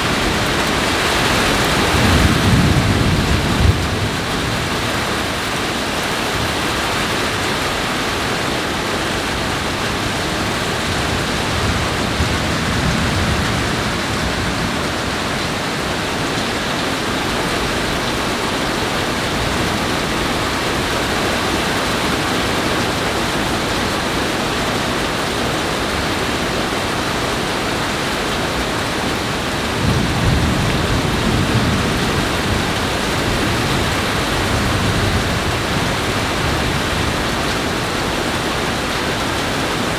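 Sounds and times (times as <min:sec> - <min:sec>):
heavy rain falling: 0:00.0 - 0:39.9
thunder rolling: 0:00.1 - 0:05.4, 0:29.7 - 0:38.5.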